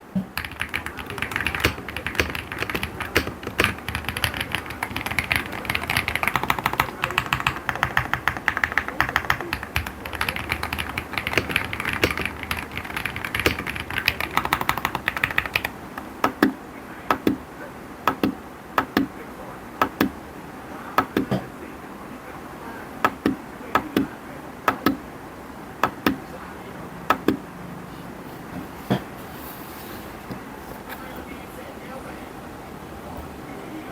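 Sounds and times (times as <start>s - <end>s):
mechanical keyboard typing: 0.2s - 17.4s, 18.1s - 19.1s, 19.8s - 20.2s, 24.7s - 25.0s, 25.8s - 26.2s, 27.1s - 27.4s.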